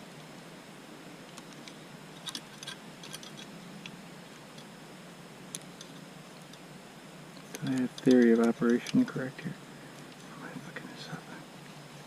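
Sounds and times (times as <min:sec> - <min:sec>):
faint hiss: 0:00.0 - 0:12.0
bicycle chain metallic clicks: 0:01.4 - 0:03.5, 0:07.4 - 0:09.2.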